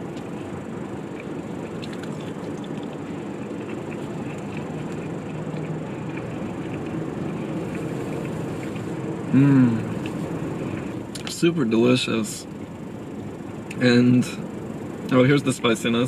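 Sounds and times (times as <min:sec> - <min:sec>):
person chewing: 0:00.0 - 0:11.3
steady background rumble: 0:00.0 - 0:16.0.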